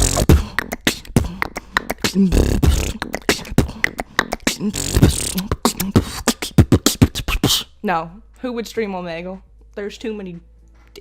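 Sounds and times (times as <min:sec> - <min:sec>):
person beatboxing: 0:00.0 - 0:07.8.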